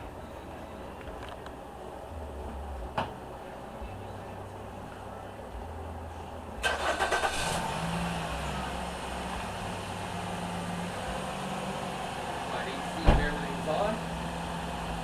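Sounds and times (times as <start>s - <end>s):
car engine idling: 3.8s - 15.0s
car engine cranking: 6.6s - 8.6s.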